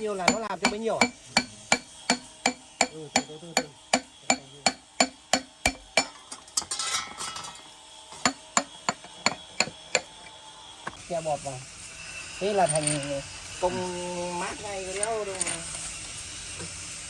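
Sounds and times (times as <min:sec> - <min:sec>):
hammer striking metal: 0:00.0 - 0:10.2.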